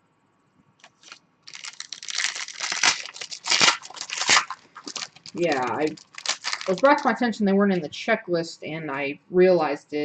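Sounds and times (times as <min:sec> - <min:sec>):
wrapper tearing and crinkling: 0:00.8 - 0:07.2.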